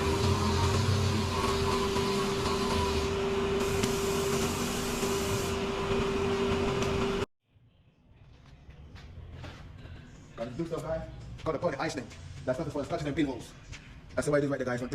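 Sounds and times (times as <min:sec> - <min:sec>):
loud hiss: 0:00.0 - 0:05.6
motor tool whining: 0:00.0 - 0:07.2.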